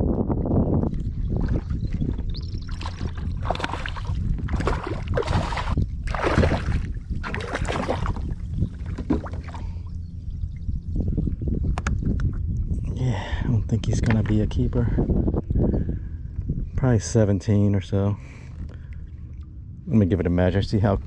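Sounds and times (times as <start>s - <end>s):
wind rumble on microphone: 0.0s - 21.0s
fish splashing in water: 2.7s - 9.8s.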